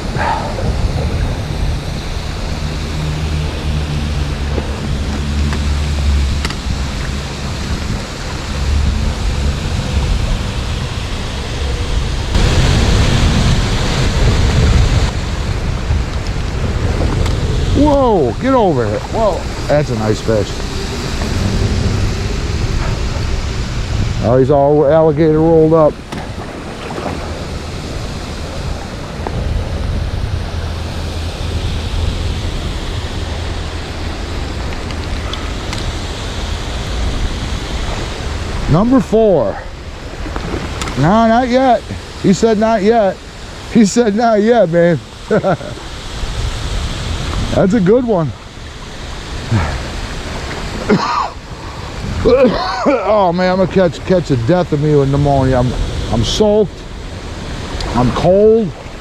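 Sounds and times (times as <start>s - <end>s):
low rumble: 0.0s - 39.0s
creek water rushing: 0.0s - 59.0s
rain: 0.0s - 59.0s
faint clicks: 34.6s - 36.1s.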